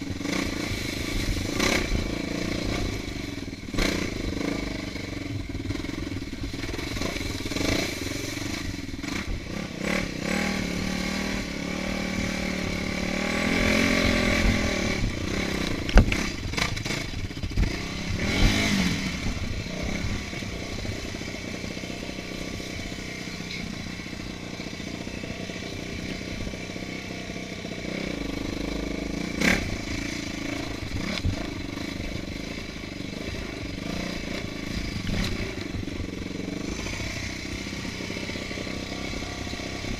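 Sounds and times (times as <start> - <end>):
motorcycle engine revving: 0.0 - 39.9
motorcycle clattering over bumps: 13.2 - 27.0, 27.7 - 39.9.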